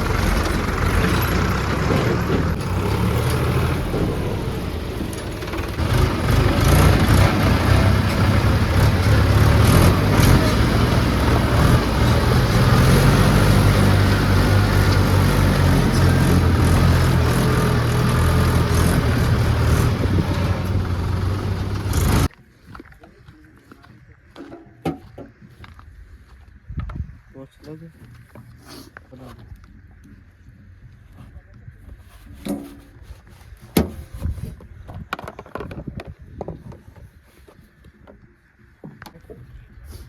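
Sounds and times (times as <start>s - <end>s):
tractor engine under load: 0.0s - 22.3s.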